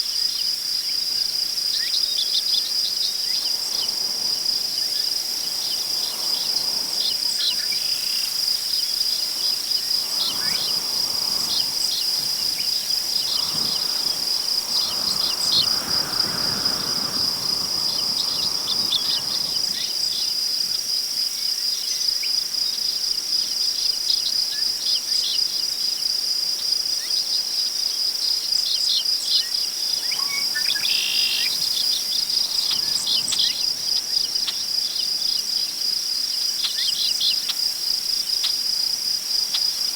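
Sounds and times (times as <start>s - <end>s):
crickets trilling: 0.0s - 39.9s
grass rustling in wind: 1.8s - 21.4s, 29.7s - 39.9s.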